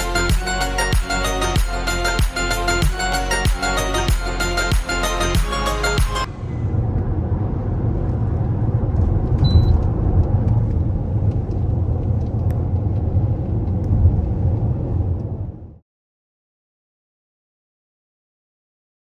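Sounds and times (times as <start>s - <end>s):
low rumbling noise: 6.2s - 15.8s.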